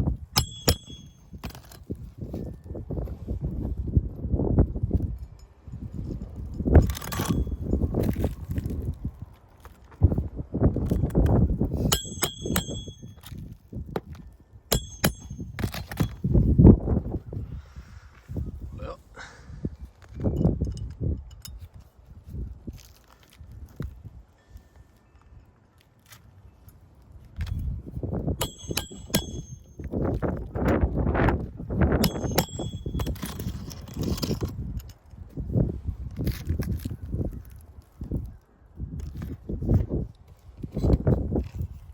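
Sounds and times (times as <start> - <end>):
hammer striking metal: 0.4 - 1.6, 11.8 - 13.4, 14.7 - 16.2, 28.4 - 29.9, 32.0 - 33.8
metal-on-metal clinks: 0.4 - 3.2, 5.0 - 8.4, 11.8 - 16.5, 20.0 - 21.8, 28.4 - 30.4, 31.9 - 35.0.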